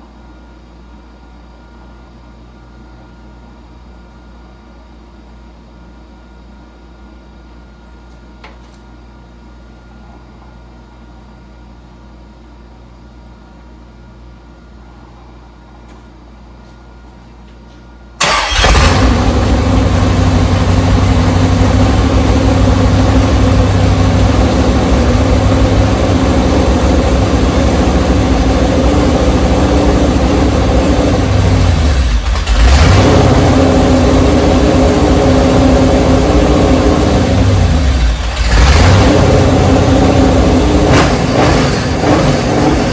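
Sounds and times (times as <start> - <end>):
engine running loudly: 18.2 - 42.9.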